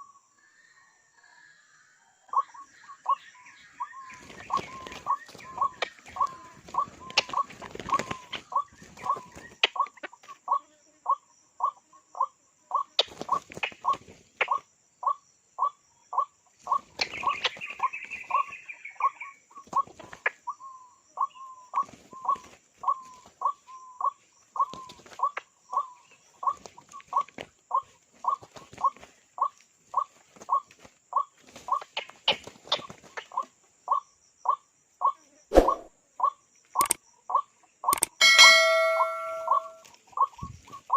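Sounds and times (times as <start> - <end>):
higher bird chatter: 2.3 - 10.6, 16.1 - 20.5, 35.5 - 40.9.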